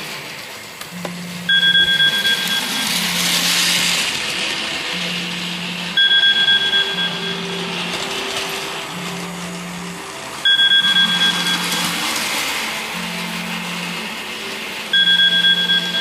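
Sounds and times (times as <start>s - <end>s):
pulsed electronic two-tone signal: 0.9s - 4.0s, 5.9s - 12.3s, 12.9s - 16.0s.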